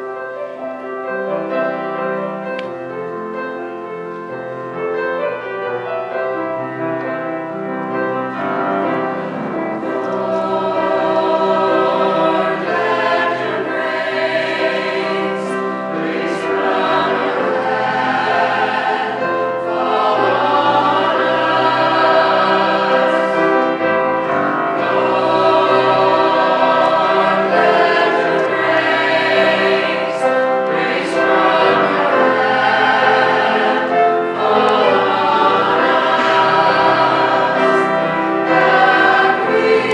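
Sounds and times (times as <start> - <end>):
instrumental accompaniment: 0.0 - 39.9
choir singing a hymn: 4.3 - 39.9.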